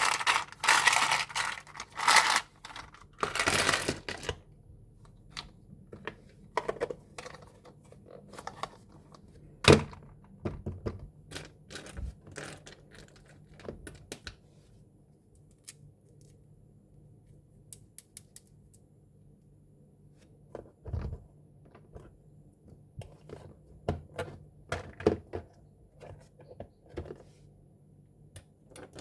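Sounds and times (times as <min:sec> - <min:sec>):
plastic toys clicking and tapping: 0:00.0 - 0:04.4.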